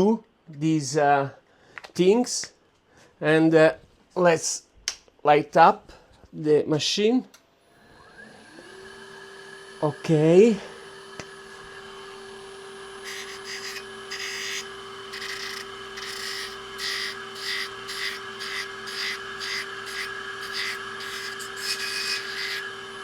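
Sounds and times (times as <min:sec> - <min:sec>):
grinder humming: 0:08.6 - 0:23.0
grinding wheel scraping: 0:13.0 - 0:23.0.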